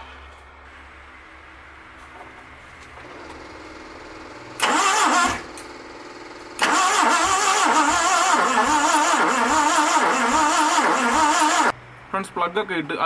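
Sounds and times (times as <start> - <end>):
starter motor cranking: 3.0 - 11.7.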